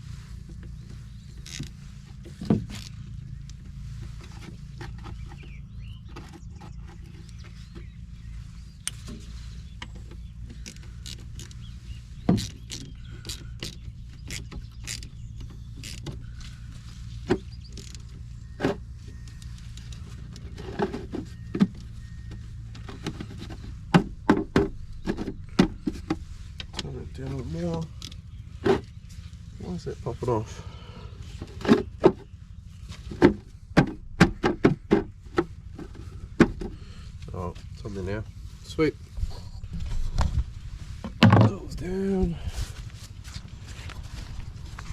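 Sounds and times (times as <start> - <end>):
engine running: 0.0 - 44.9
sharp clicks and knocks: 17.2 - 26.9.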